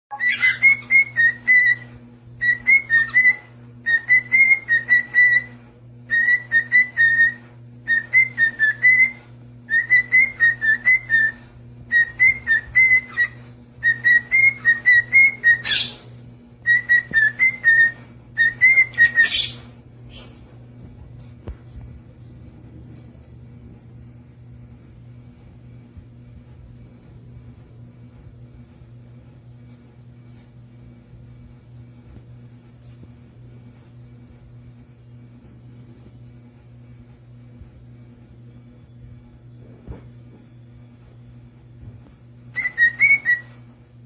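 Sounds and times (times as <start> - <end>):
bird chirping and whistling: 0.1 - 20.4, 42.5 - 43.6
steady low hum: 0.1 - 44.0.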